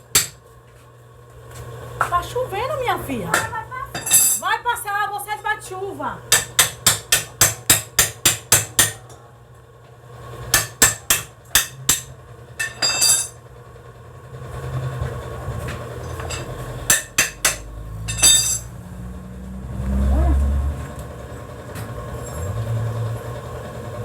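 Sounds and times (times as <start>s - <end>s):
hammer striking metal: 0.0s - 0.4s, 6.3s - 9.1s, 10.5s - 13.4s, 16.2s - 18.7s.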